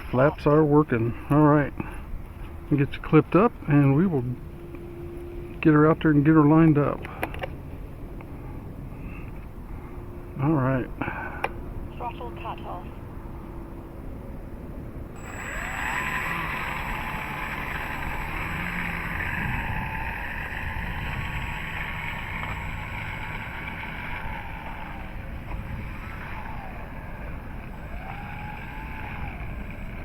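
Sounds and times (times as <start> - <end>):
electric motor whining: 15.2 - 30.0.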